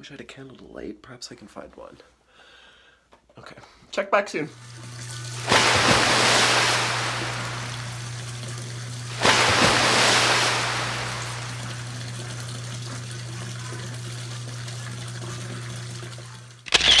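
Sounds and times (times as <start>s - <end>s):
water rushing into bathtub: 4.5s - 17.0s
steady low hum: 4.9s - 13.7s.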